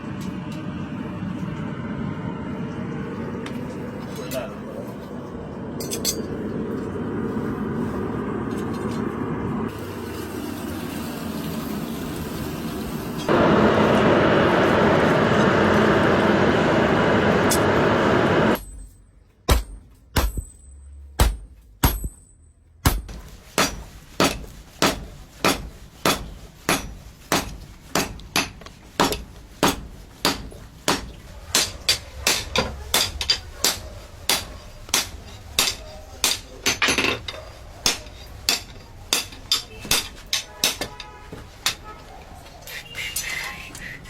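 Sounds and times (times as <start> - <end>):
hammer striking metal blade: 5.8 - 6.3, 18.6 - 41.9.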